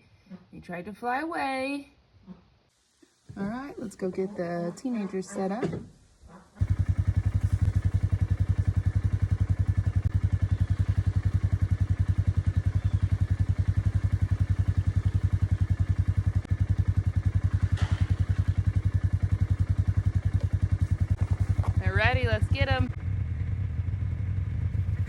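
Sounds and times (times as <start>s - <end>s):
utility vehicle engine running: 6.6s - 25.0s.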